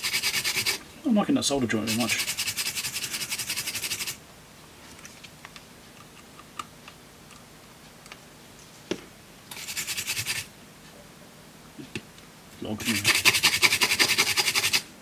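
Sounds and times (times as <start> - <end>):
scrubbing circuit board: 1.8 - 4.1.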